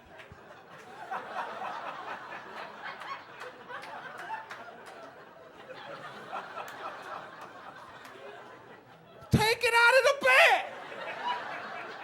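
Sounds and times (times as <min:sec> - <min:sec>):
audience laughing: 0:00.1 - 0:09.3, 0:10.0 - 0:12.0.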